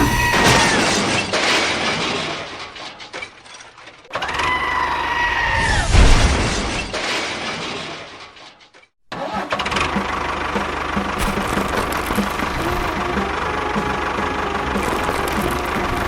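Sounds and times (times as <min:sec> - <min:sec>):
small engine whine: 0:09.2 - 0:16.0
engine running with regular pulse: 0:09.6 - 0:16.0.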